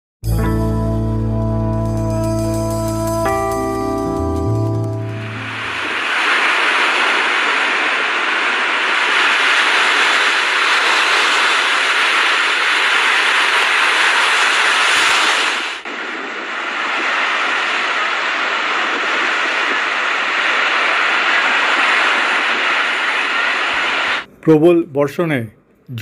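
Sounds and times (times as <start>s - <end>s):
heavy rain: 1.9s - 24.3s.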